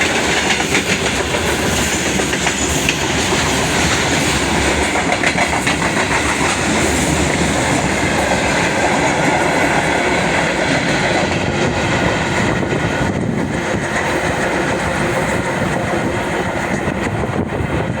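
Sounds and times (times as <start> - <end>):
rumble of freight train: 0.0 - 18.0
train wheels clacking on rails: 0.0 - 18.0.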